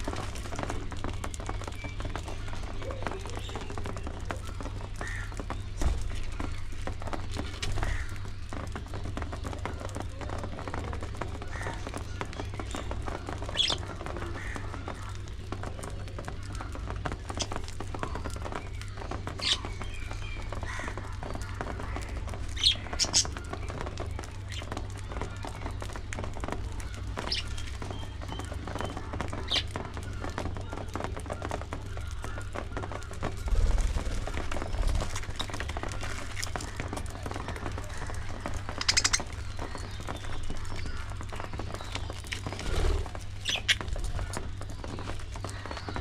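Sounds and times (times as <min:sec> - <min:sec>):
budgerigars chirping and chattering: 0:11.4 - 0:15.1, 0:18.2 - 0:23.8, 0:27.1 - 0:29.7, 0:33.4 - 0:46.0
budgerigars chattering: 0:38.7 - 0:39.9.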